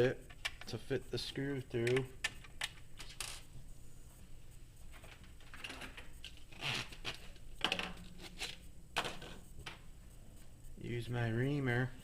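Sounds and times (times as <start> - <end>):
plastic parts and tools rustling: 2.2 - 3.6, 4.8 - 9.8.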